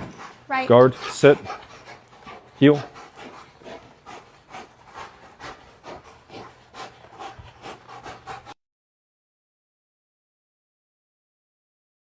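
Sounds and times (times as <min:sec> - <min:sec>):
dog panting: 0:00.0 - 0:08.6.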